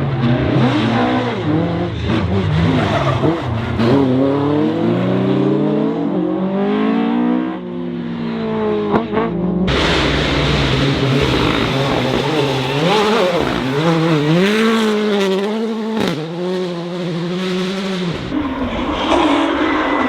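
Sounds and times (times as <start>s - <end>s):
rally car engine revving: 0.0s - 20.0s
steady engine sound: 9.2s - 17.2s.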